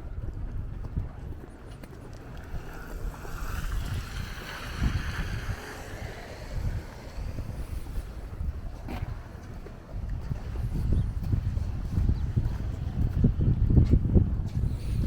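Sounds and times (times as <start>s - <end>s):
wind buffeting microphone: 0.0s - 15.0s
hiss: 2.6s - 8.1s.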